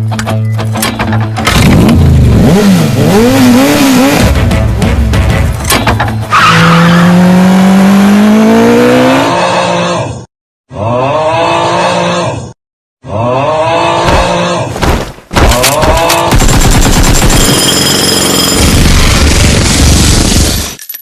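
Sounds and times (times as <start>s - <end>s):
motorbike engine revving: 1.5s - 5.5s, 6.6s - 9.9s.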